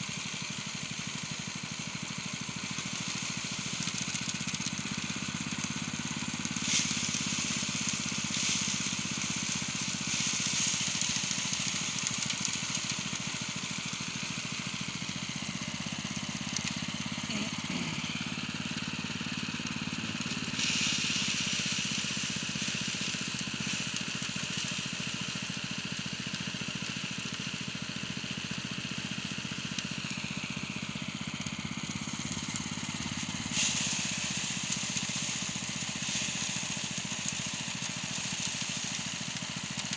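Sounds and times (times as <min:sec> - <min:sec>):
rushing hiss: 0:00.0 - 0:18.4, 0:20.6 - 0:24.2, 0:32.0 - 0:39.9
small engine running: 0:00.0 - 0:39.9.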